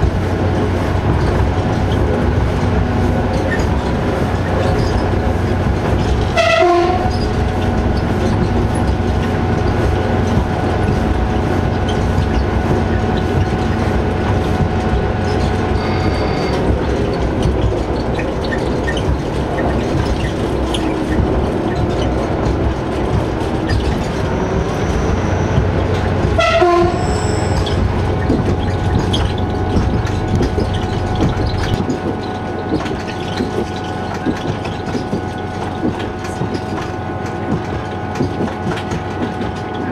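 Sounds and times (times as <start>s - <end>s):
diesel railcar engine: 0.0s - 39.9s
wheels on rails: 0.0s - 39.9s
train horn: 6.4s - 7.2s, 26.4s - 27.6s.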